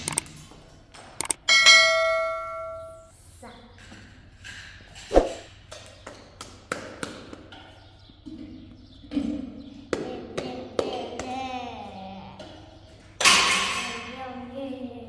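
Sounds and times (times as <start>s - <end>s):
sharp taps and knocks: 5.1s - 8.5s.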